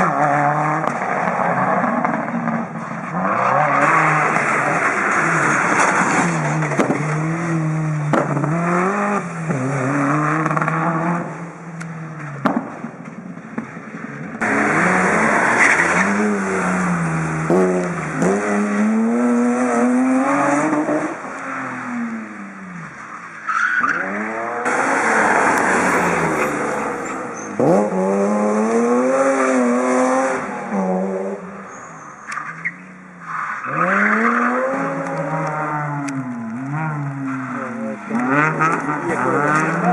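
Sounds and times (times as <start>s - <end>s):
rally car engines at full throttle: 0.0s - 39.9s
tyre squeal: 23.4s - 28.0s, 31.7s - 34.4s.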